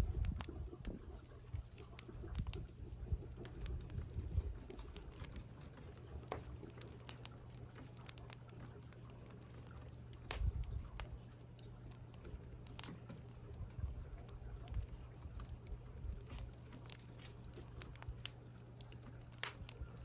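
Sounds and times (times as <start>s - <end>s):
dull low thumps: 0.0s - 1.0s.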